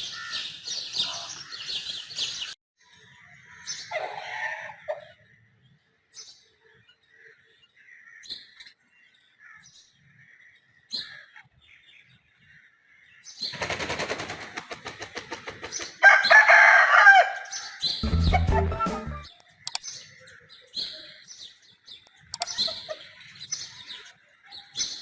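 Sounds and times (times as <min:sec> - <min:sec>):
rooster flapping wings: 0:13.6 - 0:16.0
rooster crowing: 0:16.0 - 0:17.5.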